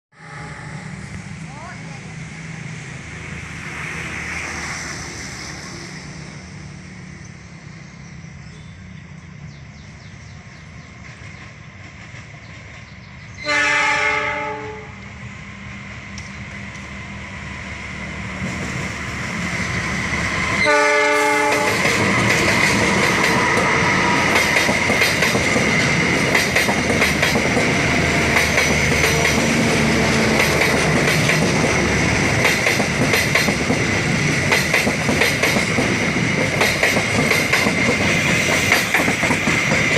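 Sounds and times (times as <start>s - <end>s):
train horn blasts: 0.1s - 1.2s, 13.4s - 15.2s, 20.6s - 22.0s
diesel train engine hum: 0.2s - 39.9s
train wheels clattering on rails: 10.6s - 13.4s, 18.1s - 39.9s.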